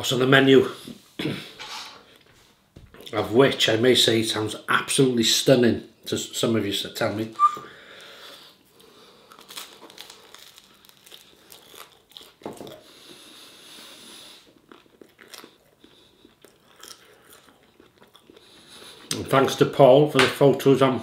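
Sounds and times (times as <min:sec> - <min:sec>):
crunchy flatbread chewing: 0:08.7 - 0:19.1.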